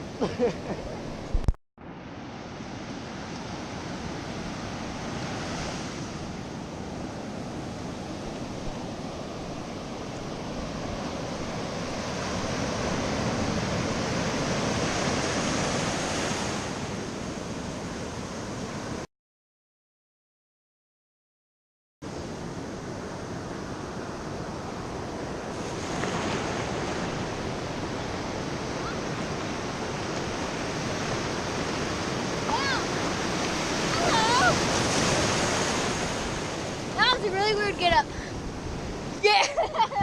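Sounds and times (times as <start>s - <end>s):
ocean waves breaking: 0.0s - 19.0s, 22.1s - 40.0s.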